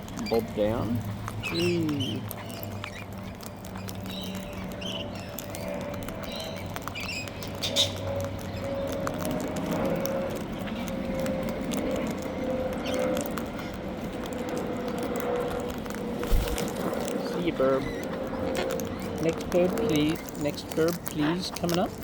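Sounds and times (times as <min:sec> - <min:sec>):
beaks tapping at food: 0:00.0 - 0:22.0
steady low hum: 0:15.8 - 0:17.4.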